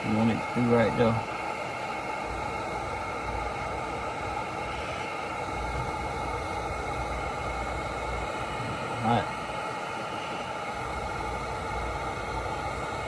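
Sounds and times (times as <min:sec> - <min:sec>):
heat gun fan hissing: 0:00.0 - 0:13.0.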